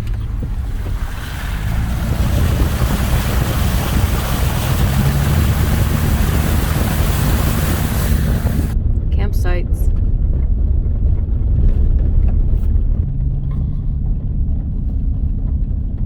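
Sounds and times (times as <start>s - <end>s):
truck driving on dirt trail: 0.0s - 16.0s
rushing hiss: 1.1s - 8.8s.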